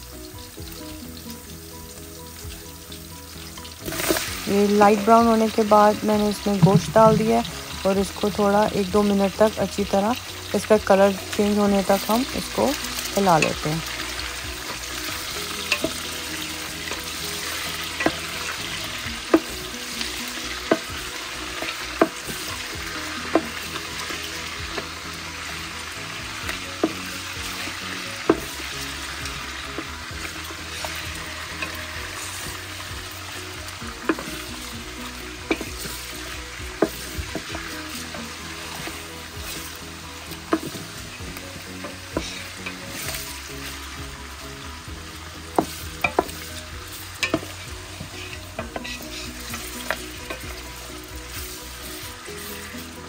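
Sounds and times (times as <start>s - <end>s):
meat sizzling in hot oil: 0.0s - 53.0s
wooden spoon knocking on pot: 6.5s - 7.6s, 45.6s - 46.4s.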